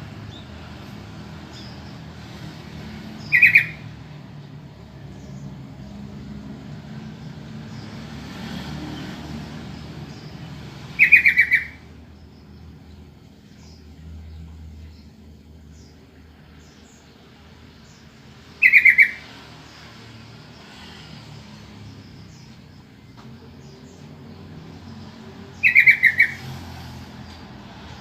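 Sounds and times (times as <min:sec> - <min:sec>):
bird chattering: 0:03.2 - 0:03.8, 0:11.0 - 0:11.9, 0:18.6 - 0:19.3, 0:25.6 - 0:26.5.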